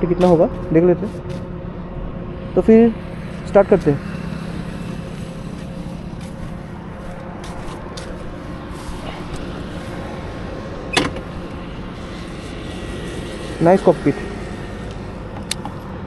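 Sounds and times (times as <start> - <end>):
motorcycle engine idling: 2.7 - 10.5.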